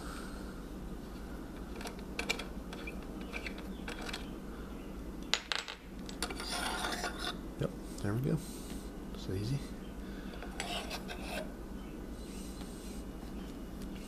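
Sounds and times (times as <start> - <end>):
lamp parts clicking and clinking: 1.6 - 4.3
scraping: 6.1 - 7.4, 10.3 - 11.5.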